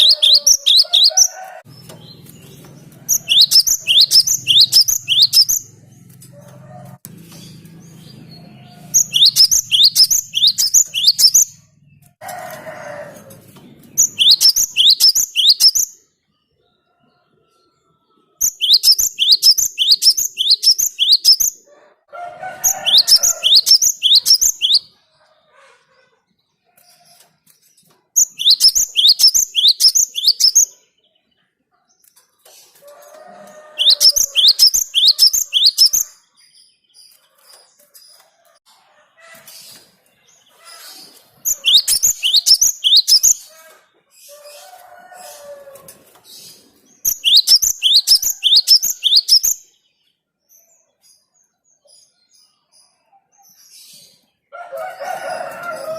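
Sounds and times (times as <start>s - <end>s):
bird singing high whistled notes: 0.0s - 1.4s, 3.1s - 5.7s, 8.9s - 11.6s, 14.0s - 16.0s, 18.4s - 21.6s, 22.8s - 24.9s, 28.2s - 30.7s, 33.8s - 36.1s, 41.5s - 43.4s, 47.1s - 49.6s.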